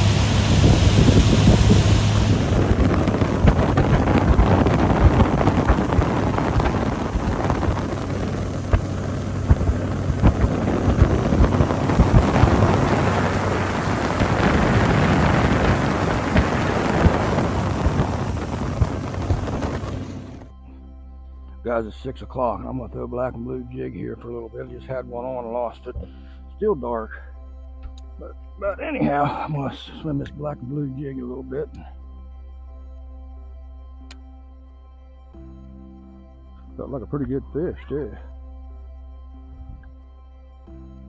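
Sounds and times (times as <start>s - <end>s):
outboard boat engine: 0.0s - 20.5s
wind buffeting microphone: 0.0s - 20.5s.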